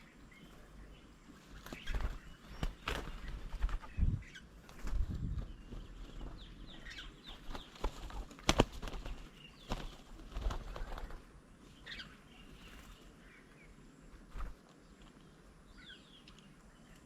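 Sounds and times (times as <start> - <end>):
bird wingbeats: 1.3 - 13.2, 14.1 - 15.2.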